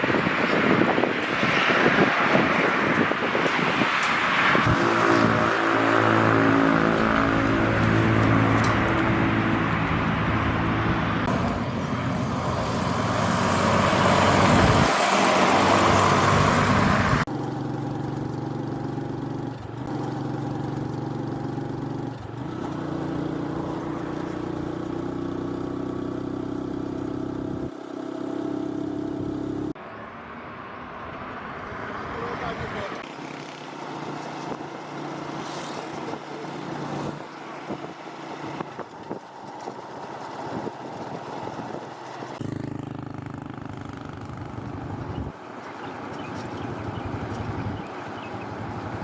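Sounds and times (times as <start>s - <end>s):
car engine running: 0.0s - 29.8s, 33.0s - 49.0s
road noise: 0.0s - 49.0s.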